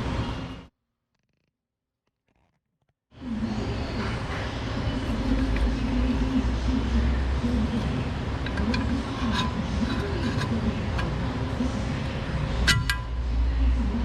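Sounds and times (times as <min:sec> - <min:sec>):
steady low hum: 0:03.1 - 0:14.0.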